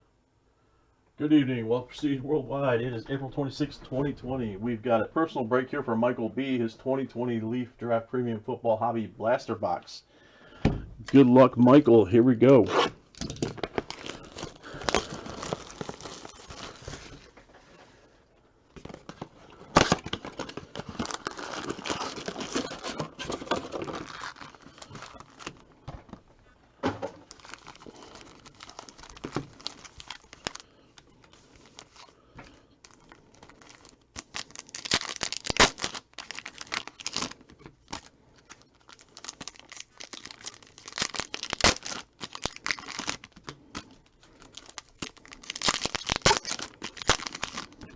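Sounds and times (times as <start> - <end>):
plastic and foil packaging crinkling: 12.4 - 17.8, 18.8 - 26.3, 27.1 - 47.9.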